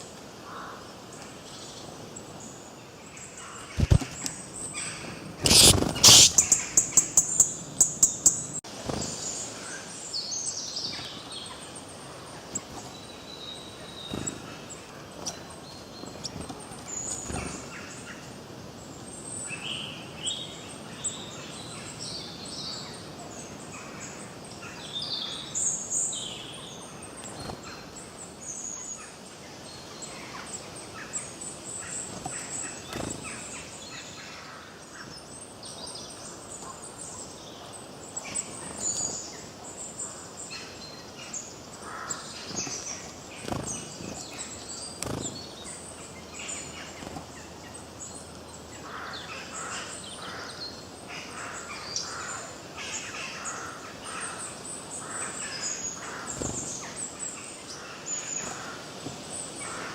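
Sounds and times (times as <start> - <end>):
background hiss: 0.0 - 59.9
songbirds chirping and singing: 0.7 - 59.9.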